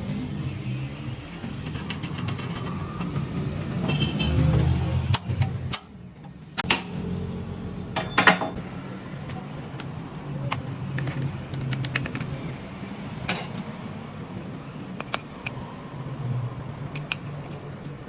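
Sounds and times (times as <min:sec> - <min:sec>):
sharp clicks and knocks: 0:01.6 - 0:03.2, 0:05.1 - 0:06.9, 0:15.0 - 0:15.6, 0:16.9 - 0:17.3.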